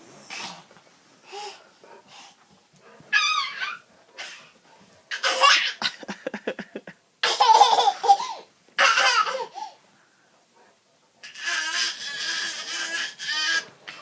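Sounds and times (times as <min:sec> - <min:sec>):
person laughing hard: 0:05.8 - 0:07.0.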